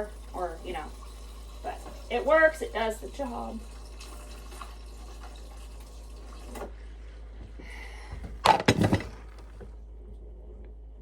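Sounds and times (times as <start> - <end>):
liquid pouring into a cup: 0.0 - 6.8.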